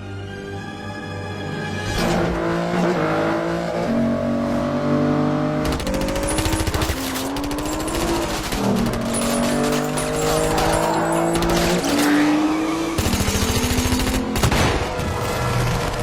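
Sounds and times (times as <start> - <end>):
car engines revving hard: 1.8 - 16.0
automatic gunfire bursts: 5.7 - 9.5.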